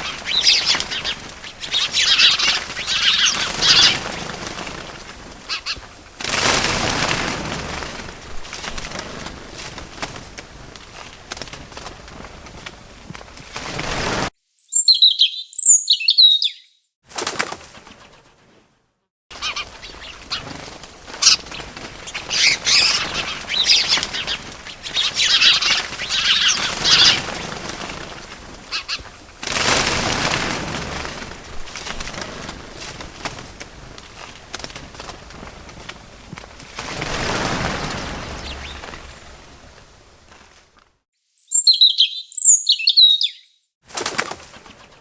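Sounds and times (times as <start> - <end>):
bird twittering: 0.0 - 4.0, 14.4 - 16.9, 19.4 - 20.5, 21.2 - 27.3, 37.9 - 39.4, 41.2 - 43.7
wings fluttering: 0.0 - 15.3, 17.1 - 42.2, 43.9 - 45.0
short high bird chirps: 14.4 - 16.9, 41.2 - 43.7.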